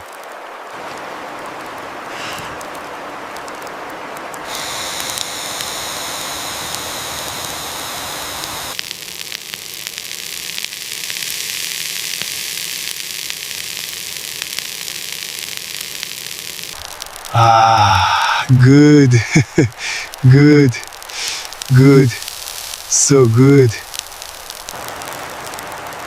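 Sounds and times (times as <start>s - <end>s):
fire crackles: 0.0s - 26.0s
fire hissing: 2.0s - 2.8s, 4.3s - 26.0s.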